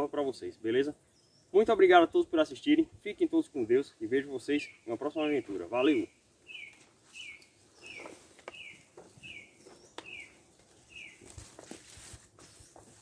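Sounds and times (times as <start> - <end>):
bird calling: 4.6 - 11.4.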